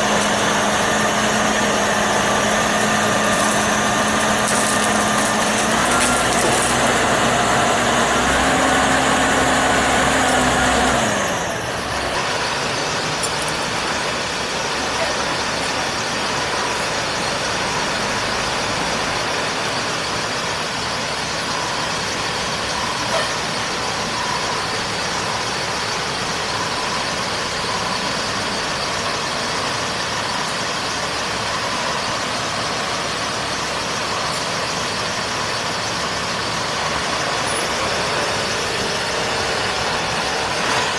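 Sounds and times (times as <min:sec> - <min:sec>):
heavy machinery din: 0:00.0 - 0:16.7
engine running: 0:00.0 - 0:40.9.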